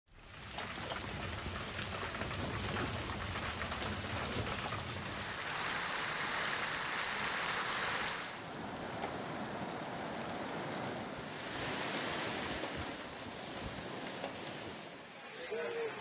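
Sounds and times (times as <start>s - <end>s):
heavy rain: 0.1s - 16.0s
wind rumbling on microphone: 8.4s - 15.0s.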